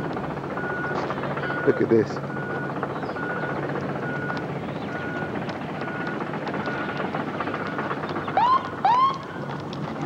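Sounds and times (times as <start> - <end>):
steady outdoor rumble: 0.0 - 10.0.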